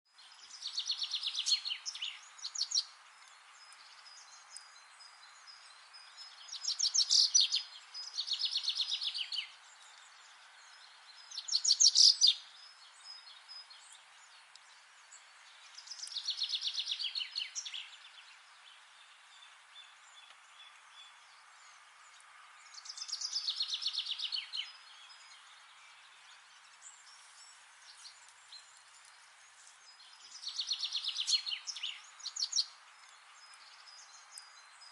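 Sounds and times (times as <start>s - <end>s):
faint steady hiss: 0.1s - 34.9s
songbird trilling: 6.5s - 9.5s, 11.3s - 12.6s, 30.3s - 32.7s.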